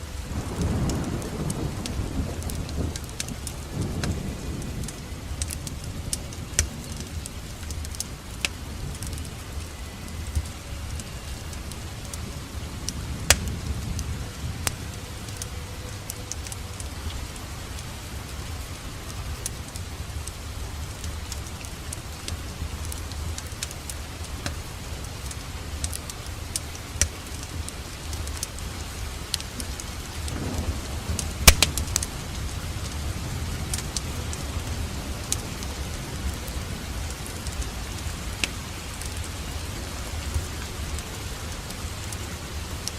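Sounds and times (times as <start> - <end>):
steady hiss: 0.0 - 42.9
wood fire crackling: 0.0 - 42.9
sharp fire pops: 30.3 - 32.1.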